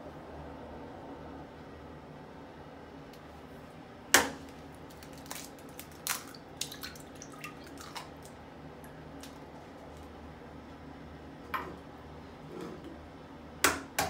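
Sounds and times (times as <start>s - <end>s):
small drips and plops: 4.9s - 9.4s
egg splashing into toilet water: 5.1s - 8.4s.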